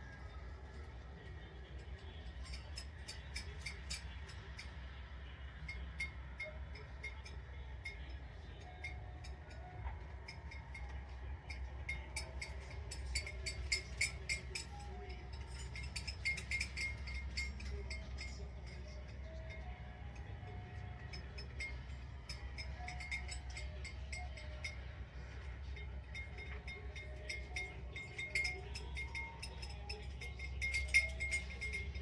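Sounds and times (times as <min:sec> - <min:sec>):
plastic toys clicking and clinking: 0:10.2 - 0:20.3.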